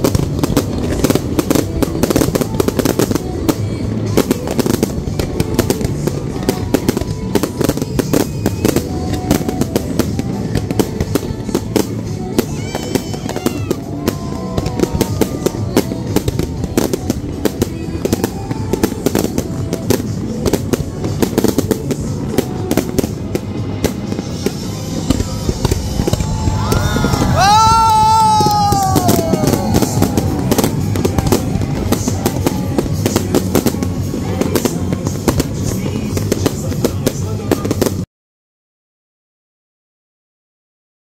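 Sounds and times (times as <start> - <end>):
fireworks bursting and crackling: 0.0 - 38.1
low rumble: 19.6 - 38.0.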